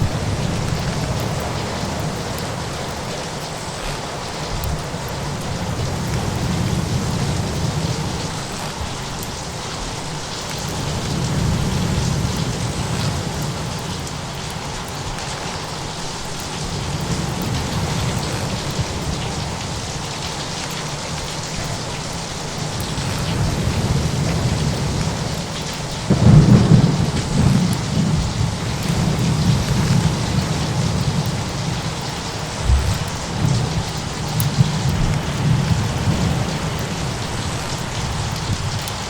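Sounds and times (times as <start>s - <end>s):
thunder rumbling: 0.0s - 15.8s, 21.6s - 39.0s
steady rain: 0.0s - 39.0s.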